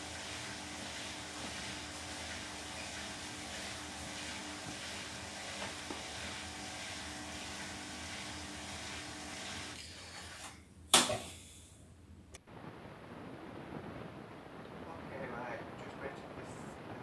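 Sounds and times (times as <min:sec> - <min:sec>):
washing machine spinning: 0:00.0 - 0:11.5.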